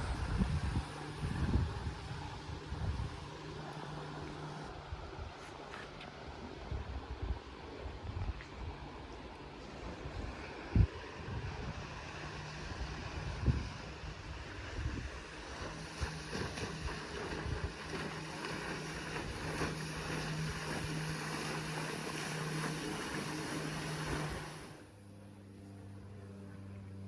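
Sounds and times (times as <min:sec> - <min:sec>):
wind buffeting microphone: 0:00.0 - 0:03.6, 0:09.9 - 0:22.9
electric outboard motor humming: 0:00.0 - 0:07.9, 0:08.8 - 0:27.0
water rushing: 0:00.0 - 0:24.9.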